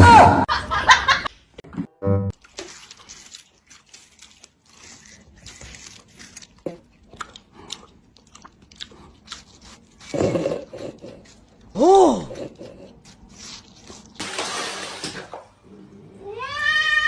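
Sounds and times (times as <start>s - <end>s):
crisp crunching and chewing: 2.4s - 11.8s, 12.6s - 14.2s.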